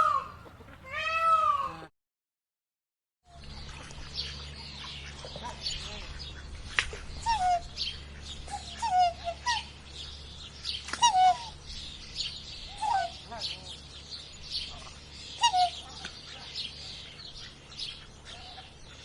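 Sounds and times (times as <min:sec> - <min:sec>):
bird falling calls: 0:00.0 - 0:01.8
birds chirping: 0:00.0 - 0:01.9, 0:03.3 - 0:19.0
steady low hum: 0:03.3 - 0:19.0.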